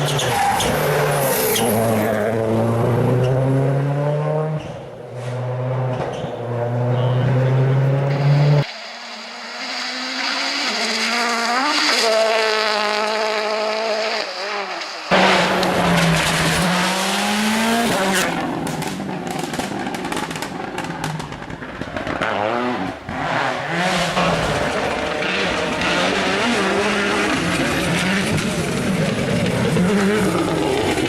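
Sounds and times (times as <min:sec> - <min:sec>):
rally car engines revving: 0:00.0 - 0:31.0
sharp cracks: 0:18.2 - 0:22.3.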